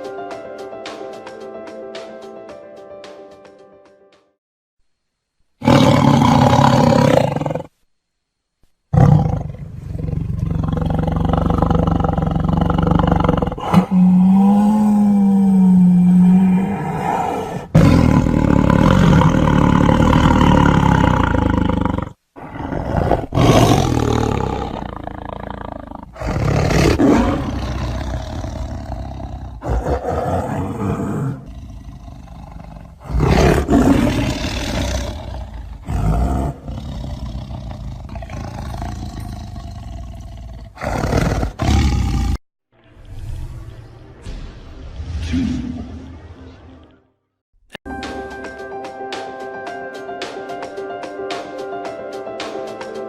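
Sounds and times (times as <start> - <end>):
tiger roaring and growling: 5.6 - 7.8, 8.9 - 42.4.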